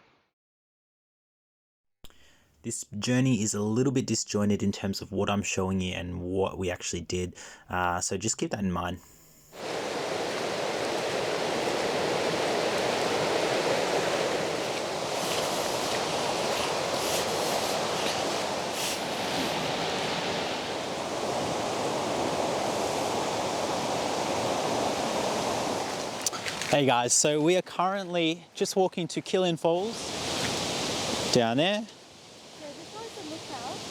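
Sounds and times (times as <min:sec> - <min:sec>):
waterfall rushing: 0:09.6 - 0:26.7, 0:32.4 - 0:33.9.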